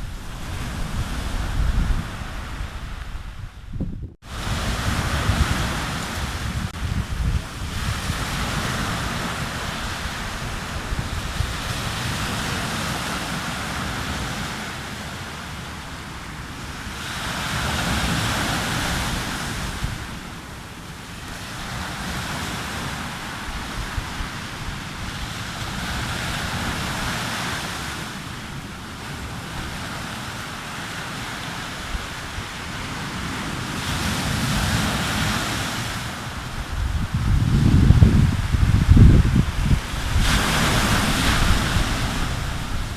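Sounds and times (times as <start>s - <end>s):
sea waves breaking on beach: 0.0s - 3.6s, 4.2s - 42.9s
wind buffeting microphone: 0.0s - 14.6s, 21.7s - 27.6s, 31.6s - 42.9s.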